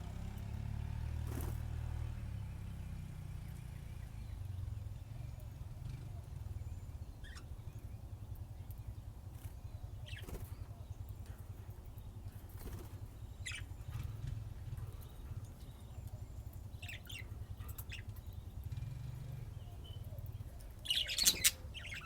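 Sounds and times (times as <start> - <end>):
budgerigars chirping: 7.2 - 7.5, 10.0 - 10.6, 12.6 - 14.1, 16.8 - 18.4, 19.6 - 22.0.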